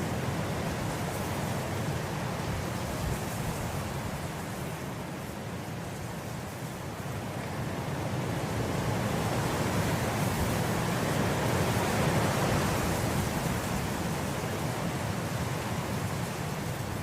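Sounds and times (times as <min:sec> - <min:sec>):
wind blowing through grass: 0:00.0 - 0:17.0.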